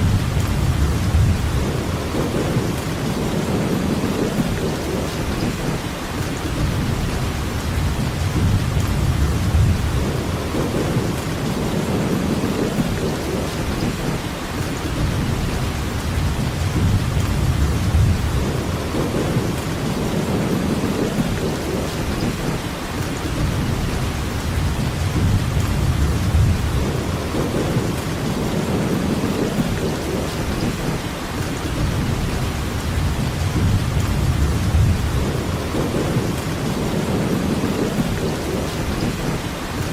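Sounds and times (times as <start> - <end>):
low rumble: 0.0 - 2.8, 6.6 - 11.2, 15.0 - 19.6, 23.4 - 28.0, 31.8 - 37.1
steady rainfall: 0.0 - 39.9.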